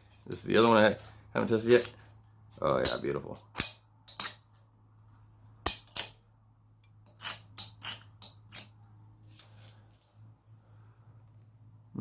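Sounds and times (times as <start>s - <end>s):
scribe scratching metal: 7.0s - 8.8s.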